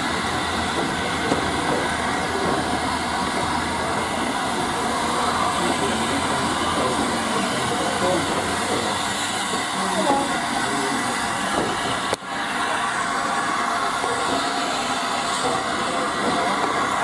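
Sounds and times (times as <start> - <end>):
faint voices: 0.0 - 13.1
train running noise inside carriage: 0.0 - 17.0.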